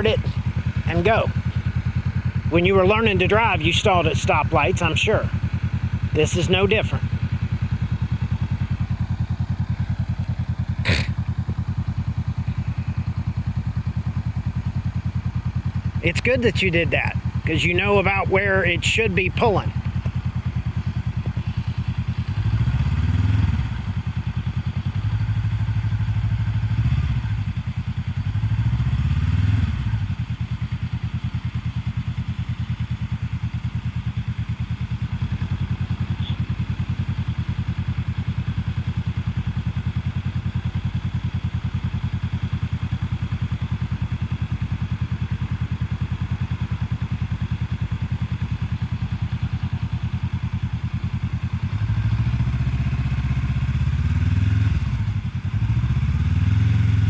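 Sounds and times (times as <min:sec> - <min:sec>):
motorcycle engine idling and revving: 0:00.0 - 0:57.0.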